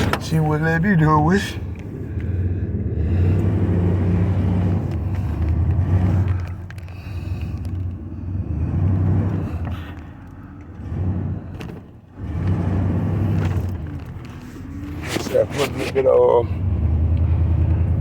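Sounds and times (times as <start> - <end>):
car rumble heard from inside: 0.0 - 18.0.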